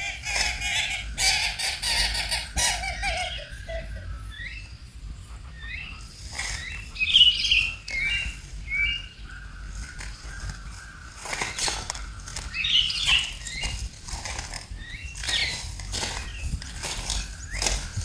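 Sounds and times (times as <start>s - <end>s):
animal squeaks and chirps: 0.0s - 4.6s, 11.4s - 18.0s.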